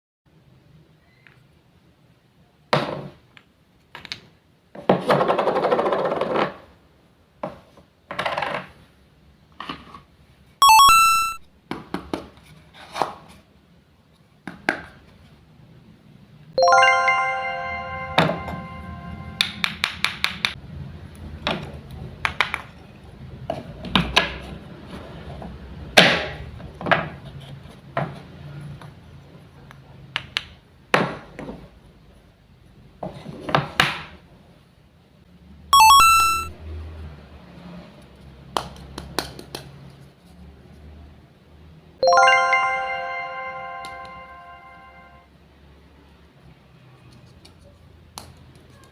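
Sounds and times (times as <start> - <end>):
bright chime: 10.6 - 11.4, 16.6 - 19.4, 35.8 - 36.5, 42.0 - 45.3
long ringing chime: 16.6 - 19.4, 42.0 - 45.3.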